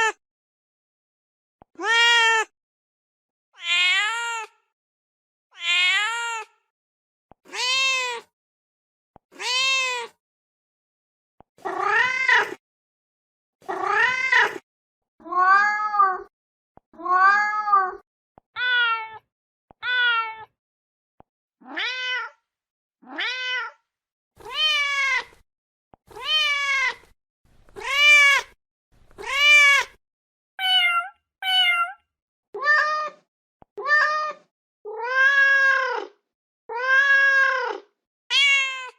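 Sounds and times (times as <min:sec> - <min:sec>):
cat meowing: 0:03.6 - 0:04.5, 0:05.6 - 0:06.5, 0:07.5 - 0:08.3, 0:09.4 - 0:10.2, 0:18.6 - 0:19.2, 0:19.8 - 0:20.5, 0:21.6 - 0:22.4, 0:23.0 - 0:23.8, 0:24.4 - 0:25.4, 0:26.1 - 0:27.1, 0:27.7 - 0:30.0, 0:30.6 - 0:32.0, 0:32.6 - 0:33.2, 0:33.8 - 0:38.9.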